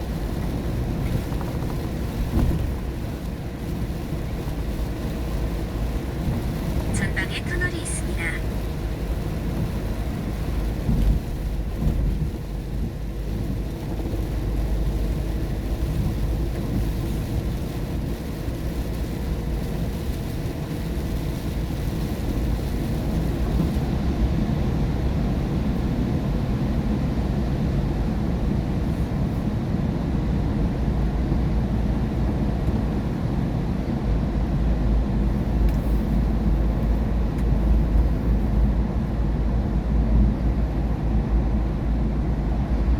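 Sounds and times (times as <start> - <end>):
rain and spray hiss: 0.0 - 25.3
car tyres and engine rumble: 0.0 - 42.9.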